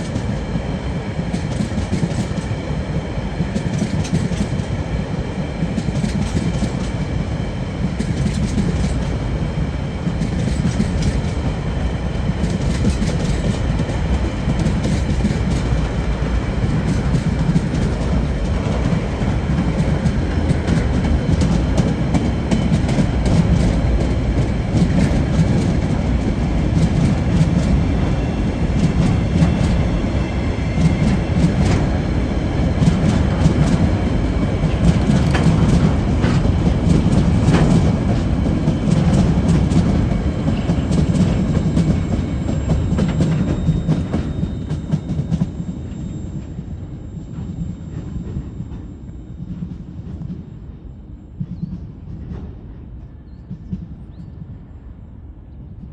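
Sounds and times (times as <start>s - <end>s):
train wheels rumbling on rail: 0.0s - 55.9s
clicking over rail joints: 5.6s - 7.0s, 12.4s - 16.0s.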